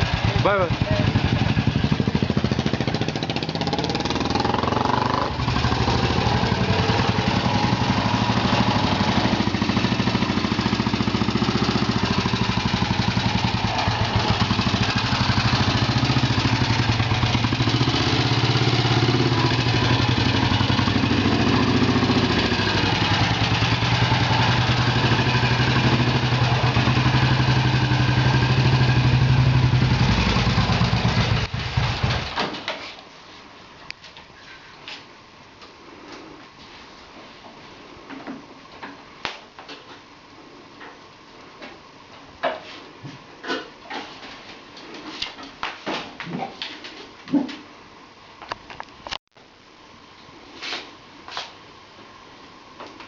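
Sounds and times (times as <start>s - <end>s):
motorcycle engine running at low revs: 0.0s - 32.4s.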